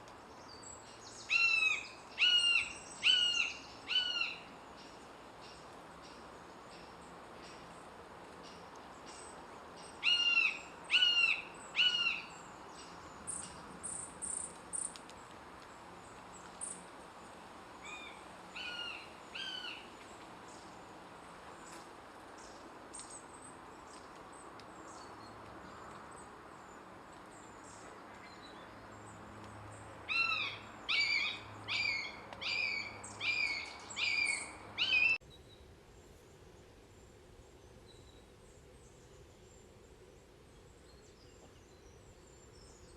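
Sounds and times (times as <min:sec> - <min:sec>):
background hiss: 0:00.0 - 0:42.9
small bird chirping: 0:30.2 - 0:35.6.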